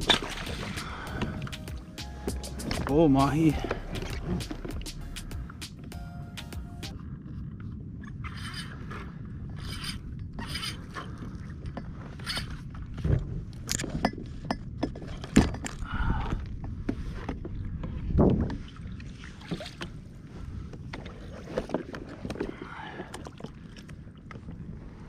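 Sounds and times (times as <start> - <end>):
water: 0.0 - 5.9, 6.9 - 25.0
wind: 0.0 - 25.0
knocks and clatter on kayak: 11.0 - 18.9, 19.5 - 23.5.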